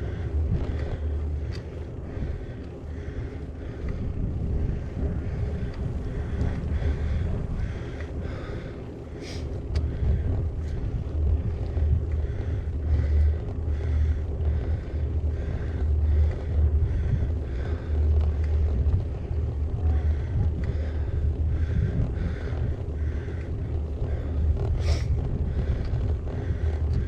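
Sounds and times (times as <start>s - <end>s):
bike tyre noise on gravel: 0.0s - 27.0s
wind buffeting microphone: 0.0s - 27.0s
light clicks: 0.6s - 1.8s.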